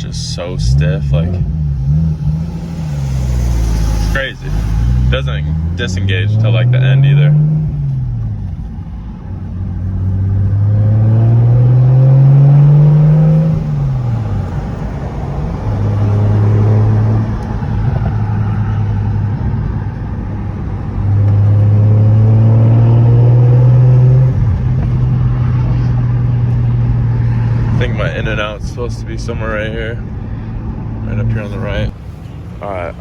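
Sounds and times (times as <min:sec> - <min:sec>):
turbocharged car engine accelerating: 0:00.0 - 0:33.0.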